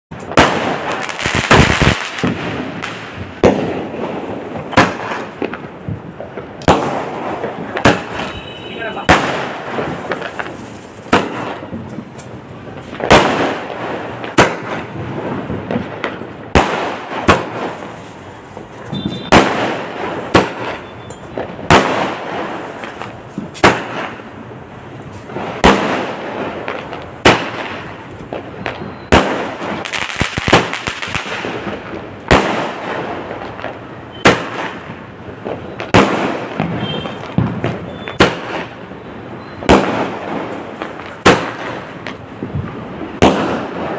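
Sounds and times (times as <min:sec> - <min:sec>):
firework bangs: 0:00.1 - 0:43.9
firework crackling: 0:00.1 - 0:43.9.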